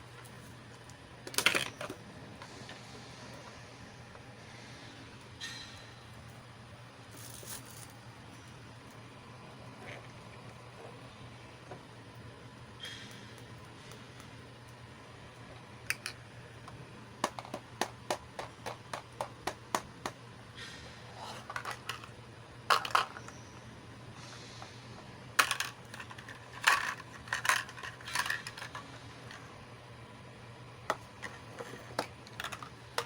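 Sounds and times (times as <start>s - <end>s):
plastic toy pieces clicking: 25.4s - 28.9s.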